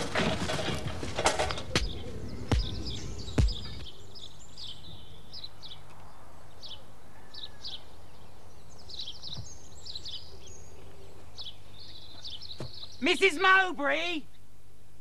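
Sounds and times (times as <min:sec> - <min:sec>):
small birds chirping: 0:01.4 - 0:14.5
heavy knock: 0:01.8 - 0:03.8.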